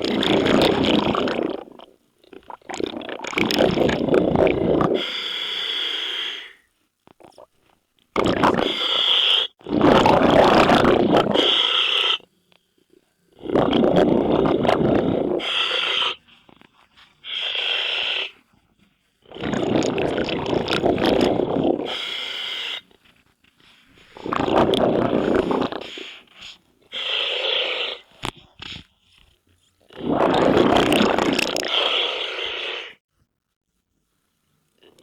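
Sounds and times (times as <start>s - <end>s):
exhaled bubbles rushing: 0.0s - 5.0s, 8.2s - 8.8s, 9.6s - 11.6s, 13.4s - 15.6s, 19.3s - 22.0s, 24.1s - 26.1s, 29.9s - 32.2s
regulator hissing inhale: 4.9s - 6.7s, 8.6s - 9.6s, 11.3s - 12.2s, 15.0s - 18.5s, 21.7s - 23.0s, 25.2s - 28.2s, 31.7s - 33.0s.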